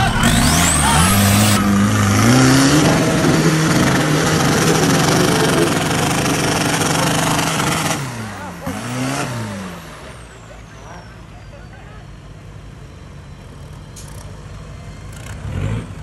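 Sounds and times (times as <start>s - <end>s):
engine revving hard: 0.0s - 11.0s, 15.2s - 16.0s.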